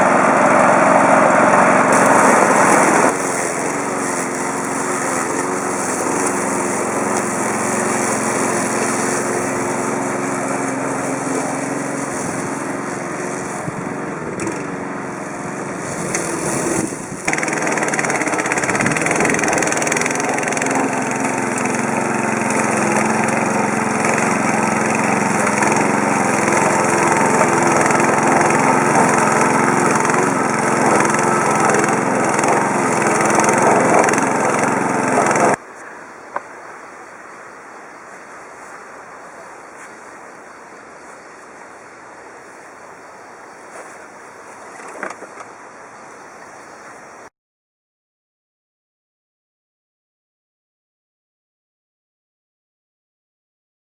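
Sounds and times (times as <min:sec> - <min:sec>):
lawn mower engine running: 0:00.0 - 0:35.6, 0:43.7 - 0:45.8.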